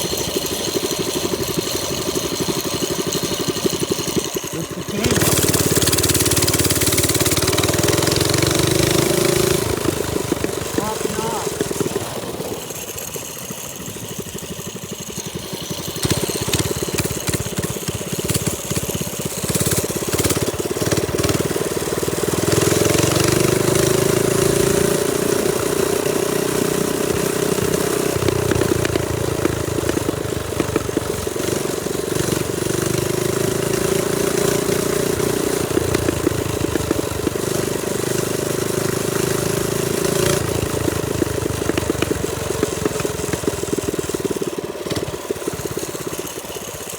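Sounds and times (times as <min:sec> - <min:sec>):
minibike engine revving: 0:00.0 - 0:46.9.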